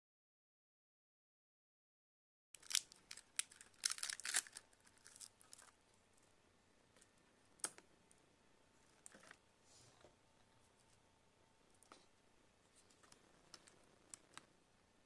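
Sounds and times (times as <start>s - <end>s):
plastic crinkling: 2.6s - 5.8s.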